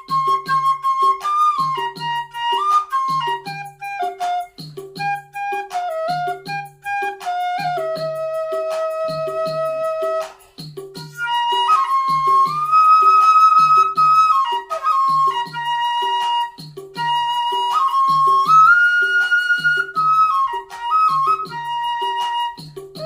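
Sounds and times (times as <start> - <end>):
flute melody: 0.0 - 23.0
steady drum beat: 0.0 - 23.0.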